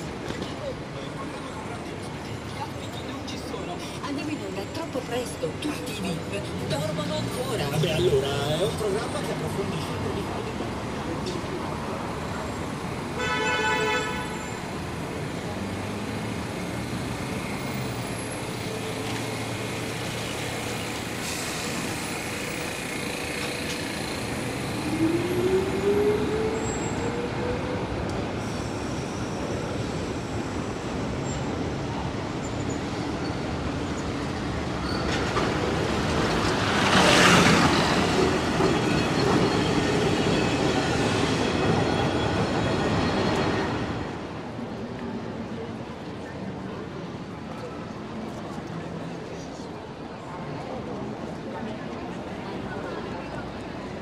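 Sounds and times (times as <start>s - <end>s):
city street traffic: 0.0s - 54.0s
vehicle horn toot: 13.2s - 14.5s.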